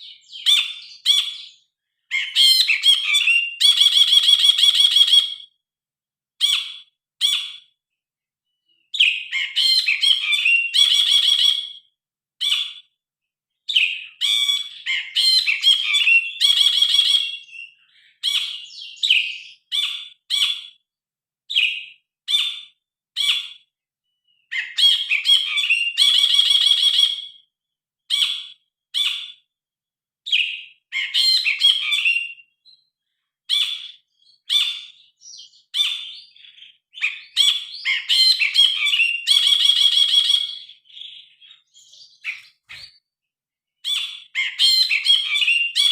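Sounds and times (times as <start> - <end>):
bulbul singing: 33.5 - 43.0.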